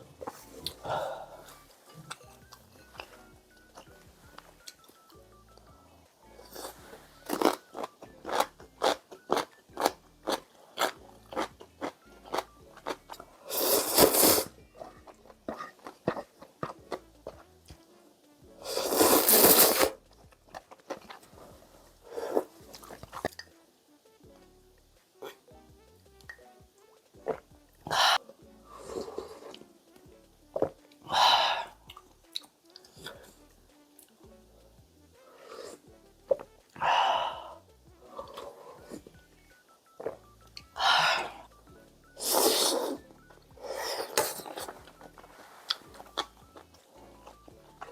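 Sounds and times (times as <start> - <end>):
background music: 0.0 - 47.9
chewing crunchy food: 6.4 - 17.8, 18.7 - 21.5, 42.4 - 47.9.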